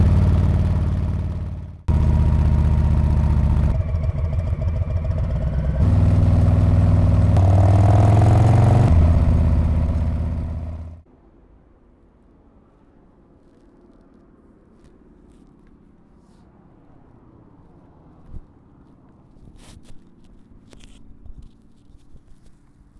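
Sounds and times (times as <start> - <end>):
motorcycle engine exhaust revving: 0.0 - 11.0.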